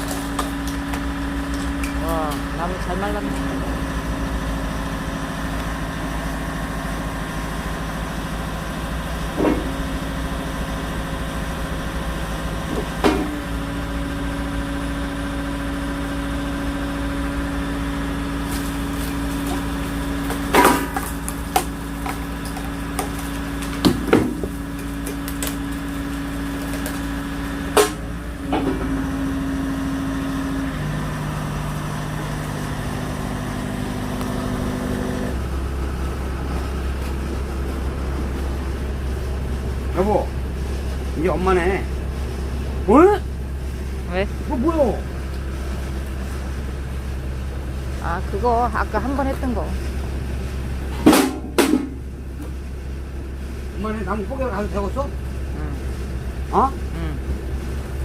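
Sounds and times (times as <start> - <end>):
logs cracking as split: 0.0 - 2.5, 18.4 - 28.0
engine running: 0.0 - 58.0
wood pieces dropping: 18.5 - 27.1.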